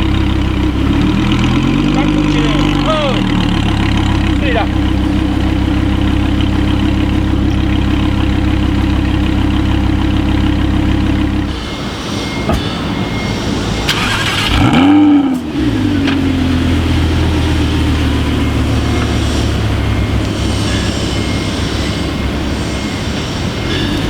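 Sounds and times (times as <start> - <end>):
car engine idling: 0.0 - 24.0
engine starting and revving: 0.0 - 24.0.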